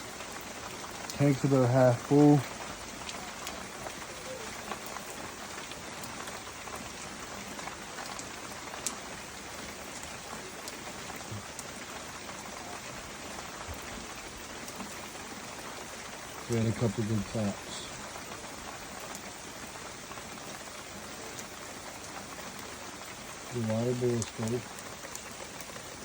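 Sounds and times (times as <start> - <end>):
heavy rain hiss: 0.0 - 26.0
drops ticking on a surface: 23.5 - 25.9.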